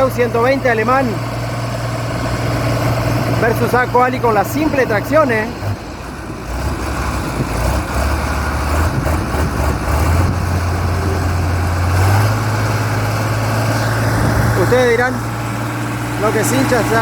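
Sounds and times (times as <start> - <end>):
tractor diesel engines revving: 0.0 - 17.0.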